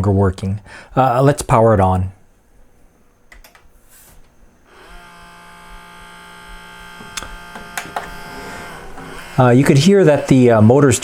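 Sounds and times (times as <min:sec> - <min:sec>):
motor whining: 0:04.6 - 0:11.0
player switch clicks: 0:07.0 - 0:08.2.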